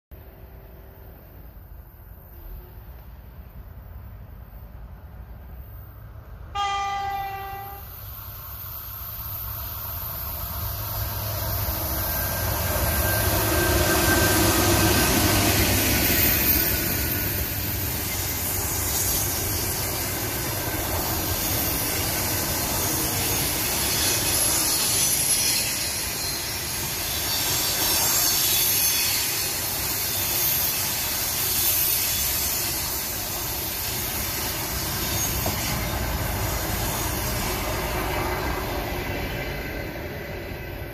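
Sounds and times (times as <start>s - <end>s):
train wheels rumbling on rails: 0.1s - 40.9s
locomotive horn: 6.5s - 7.9s.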